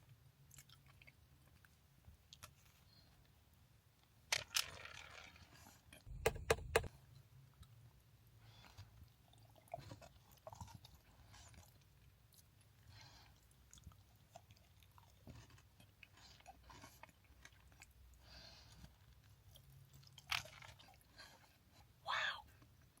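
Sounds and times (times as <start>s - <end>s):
person chewing crunchy chocolate: 0.4s - 1.7s, 9.3s - 21.4s.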